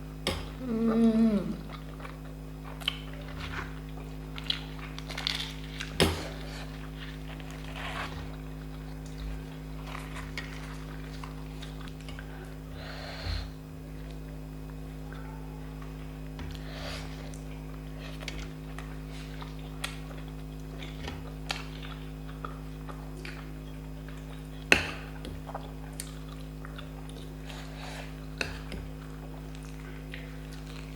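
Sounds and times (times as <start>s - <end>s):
low steady hum: 0.0s - 30.9s
wet chewing sounds: 0.4s - 12.6s, 15.8s - 30.9s.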